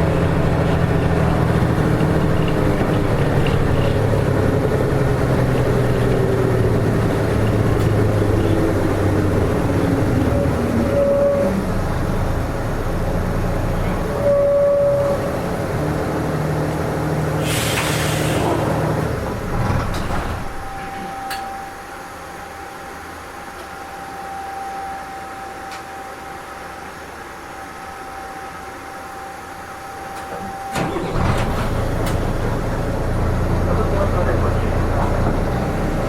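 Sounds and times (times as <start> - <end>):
bus engine running: 0.0 - 24.3, 25.6 - 36.0
steady high tone: 9.2 - 11.8
loud hiss of air: 17.4 - 18.6
click: 21.3 - 21.5, 25.7 - 25.9.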